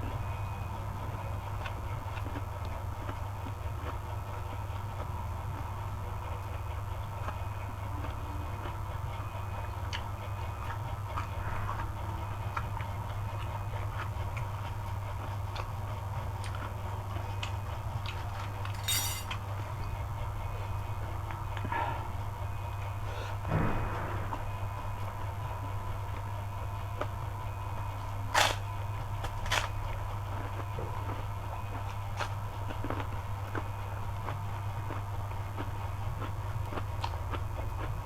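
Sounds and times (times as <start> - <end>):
steady low hum: 0.0 - 38.0
chewing and cutlery clicks: 17.4 - 19.5.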